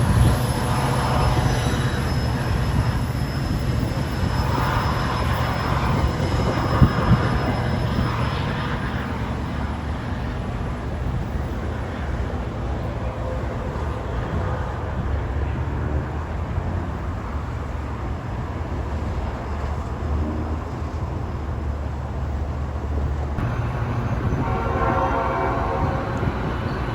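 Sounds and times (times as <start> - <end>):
diesel train rumbling: 0.0 - 26.9
train horn: 23.4 - 26.9.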